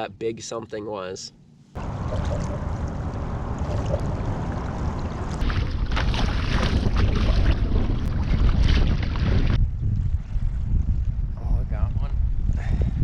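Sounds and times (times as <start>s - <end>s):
water sloshing against kayak: 1.8s - 9.6s
wind buffeting microphone: 1.8s - 13.0s.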